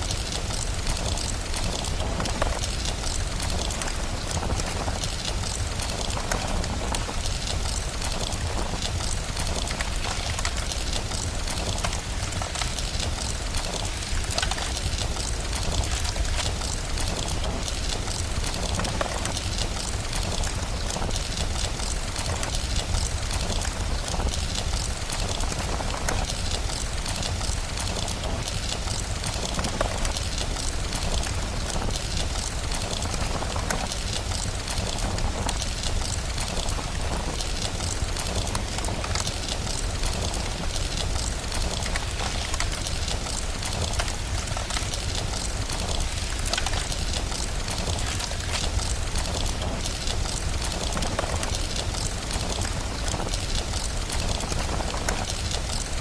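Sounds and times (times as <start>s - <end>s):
fire crackling: 0.0s - 56.0s
steady rain: 0.0s - 56.0s.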